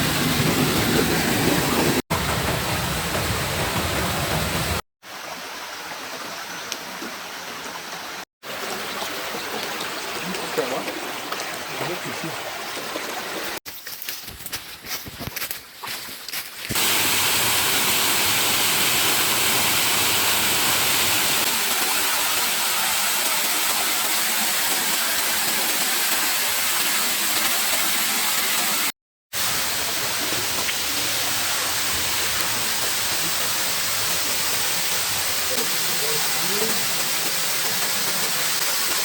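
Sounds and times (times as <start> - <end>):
waterfall rushing: 16.7 - 39.0.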